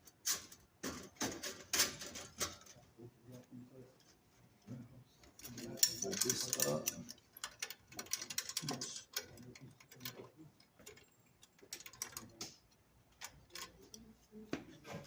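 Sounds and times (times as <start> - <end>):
parts clicking being fitted: 5.4 - 14.1.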